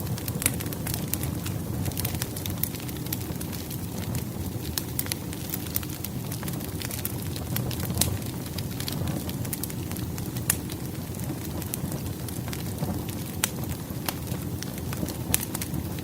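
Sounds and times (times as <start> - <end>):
firewood crackling: 0.0 - 16.0
low rumble of flames: 0.0 - 16.0
sharp pops and snaps: 0.1 - 16.0.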